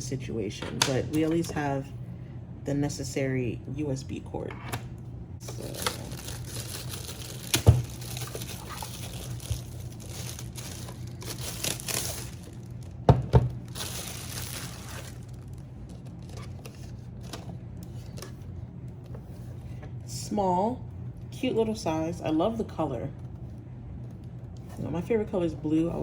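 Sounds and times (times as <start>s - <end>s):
plastic packaging rustling: 5.4s - 18.3s.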